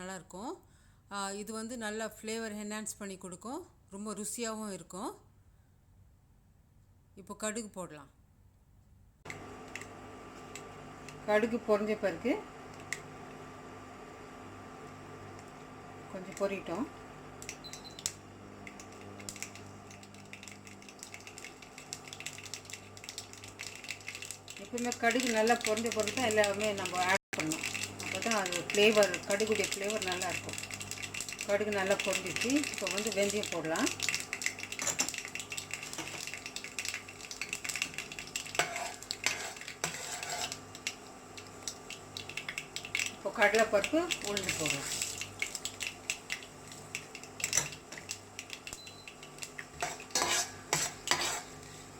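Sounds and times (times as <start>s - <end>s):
mustard seeds popping in oil: 17.4s - 51.3s.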